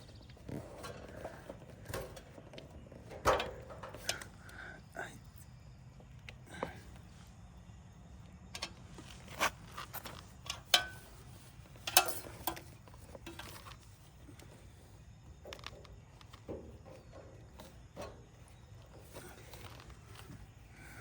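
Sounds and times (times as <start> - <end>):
hand tools clicking and knocking: 0.0 - 4.4, 8.6 - 14.5.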